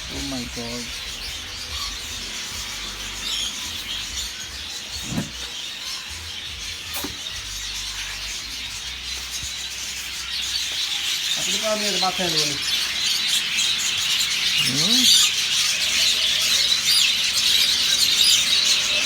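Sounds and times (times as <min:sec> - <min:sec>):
caged birds chirping: 0:00.0 - 0:19.0
brief knocks: 0:05.0 - 0:05.5.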